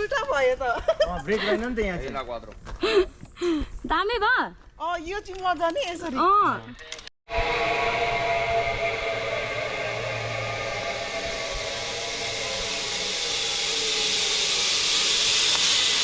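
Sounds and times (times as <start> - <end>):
zip line pulleys whirring: 6.8 - 16.0
rushing hiss: 9.4 - 16.0.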